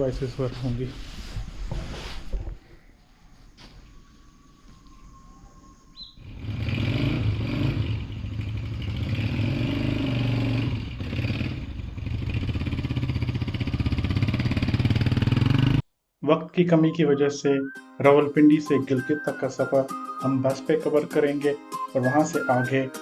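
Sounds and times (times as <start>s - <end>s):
motorcycle engine: 6.2s - 15.8s.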